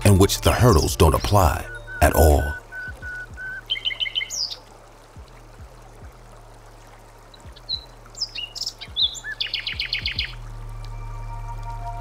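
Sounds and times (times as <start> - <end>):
songbirds chirping: 0.0 - 12.0
bird trill: 0.8 - 4.6, 7.6 - 10.4
faint low drone: 10.3 - 12.0.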